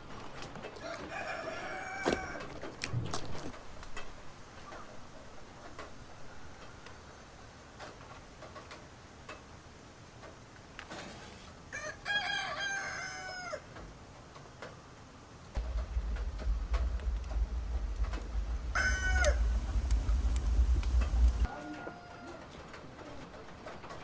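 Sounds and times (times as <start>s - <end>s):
rooster crowing: 0.8s - 2.5s, 11.7s - 13.7s, 15.6s - 22.6s
faint clicks: 15.6s - 21.5s.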